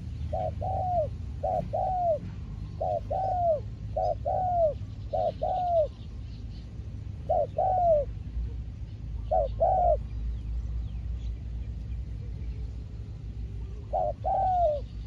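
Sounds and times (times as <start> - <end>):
dove cooing: 0.0 - 6.2, 7.0 - 10.2, 13.5 - 15.0.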